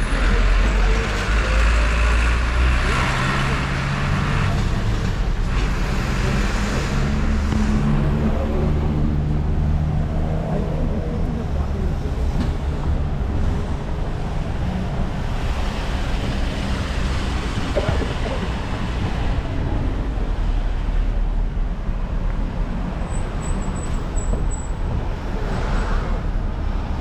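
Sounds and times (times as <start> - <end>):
road traffic rumble: 0.0 - 27.0
vehicles passing: 0.0 - 27.0.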